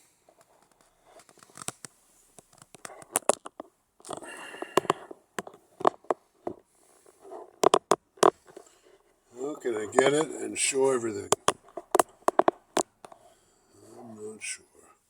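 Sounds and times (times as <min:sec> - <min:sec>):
camera handling clicks and knocks: 0:01.3 - 0:06.6, 0:07.5 - 0:08.7, 0:11.3 - 0:13.2.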